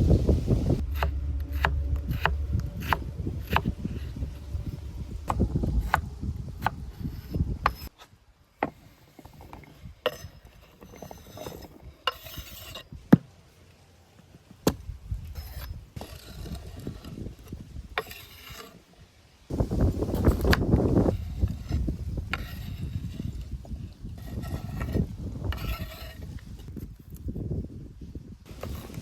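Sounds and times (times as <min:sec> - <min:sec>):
low rumble: 0:00.0 - 0:07.9, 0:19.5 - 0:26.5
objects scraping and rubbing: 0:00.0 - 0:27.3, 0:28.5 - 0:29.0.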